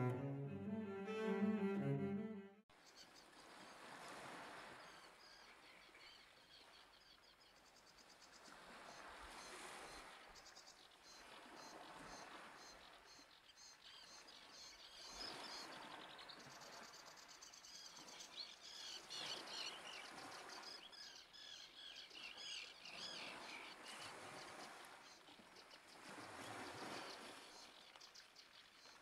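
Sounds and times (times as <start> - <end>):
soft hiss of wind or surf: 3.4 - 5.0.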